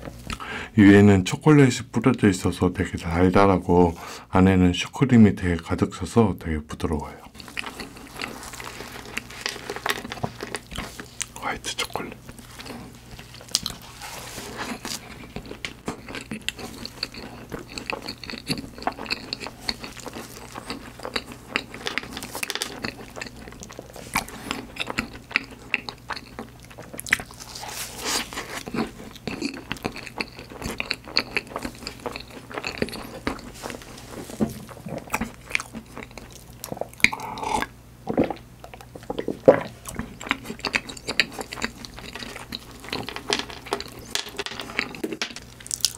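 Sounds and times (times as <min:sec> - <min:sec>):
wet chewing: 0:07.3 - 0:45.9
small crunches: 0:07.4 - 0:11.3, 0:12.0 - 0:37.4.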